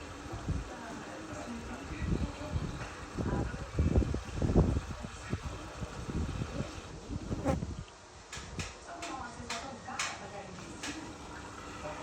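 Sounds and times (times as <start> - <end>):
washing machine buzzing hum: 0.0 - 7.5, 10.6 - 12.0.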